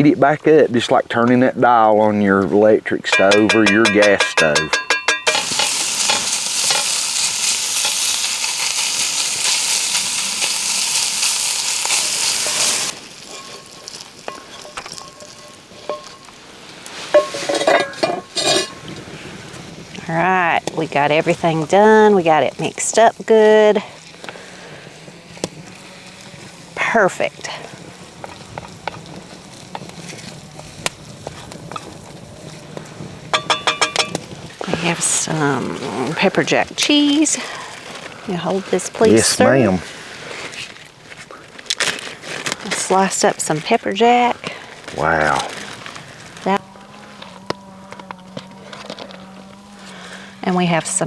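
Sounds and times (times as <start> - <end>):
metal utensil knocking cookware rim: 3.1 - 6.9, 17.2 - 18.8
utensils clicking on cookware: 3.1 - 7.1
food sizzling in a skillet: 3.4 - 40.9
light clinks: 13.3 - 16.4.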